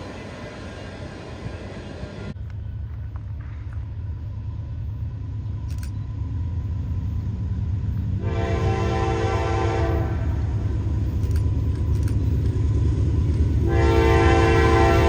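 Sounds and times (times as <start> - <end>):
train rumbling: 0.0 - 15.0
locomotive air horn chord: 8.2 - 10.4, 13.6 - 15.0.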